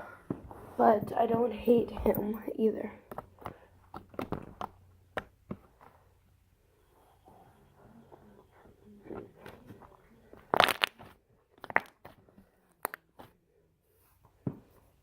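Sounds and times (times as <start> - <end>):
slime being squished: 10.4 - 12.1
slime crackling pops: 10.5 - 11.0.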